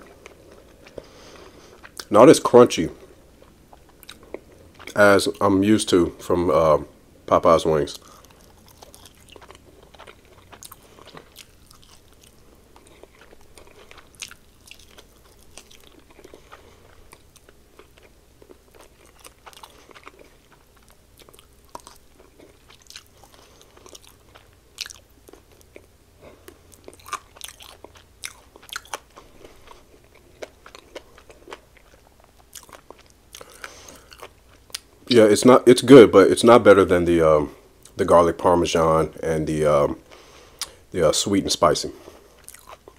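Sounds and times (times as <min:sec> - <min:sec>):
person chewing: 0:00.0 - 0:02.1, 0:03.0 - 0:05.0, 0:08.0 - 0:35.0, 0:40.0 - 0:40.8, 0:42.0 - 0:42.9
crackles of crispy food: 0:07.4 - 0:38.5, 0:39.1 - 0:42.9.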